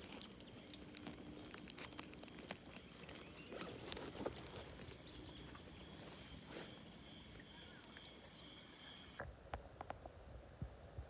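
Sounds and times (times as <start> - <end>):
soft clicks and rustles: 0.0 - 5.6
insects droning: 0.0 - 9.2
pulsing insect chirp: 4.9 - 9.2.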